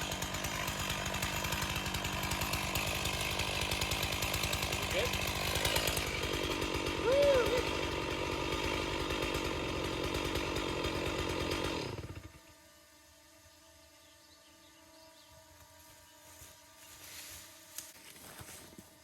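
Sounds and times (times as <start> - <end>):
chainsaw running and winding down: 0.0 - 13.5.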